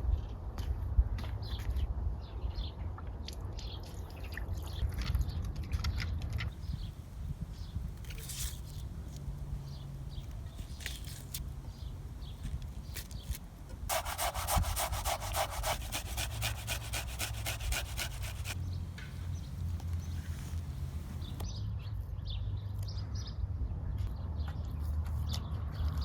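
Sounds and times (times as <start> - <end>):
fast scraping strokes: 13.9 - 21.4
low steady rumble: 18.6 - 21.4.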